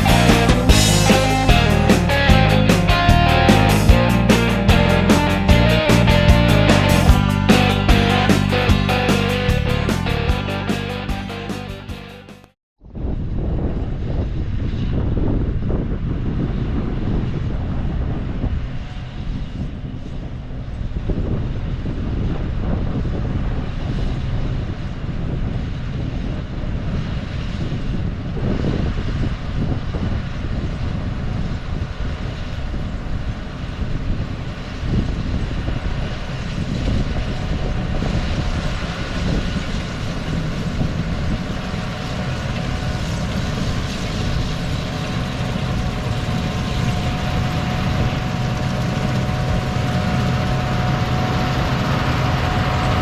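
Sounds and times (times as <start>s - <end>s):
combine harvester engine running: 0.0s - 12.2s, 39.8s - 53.0s.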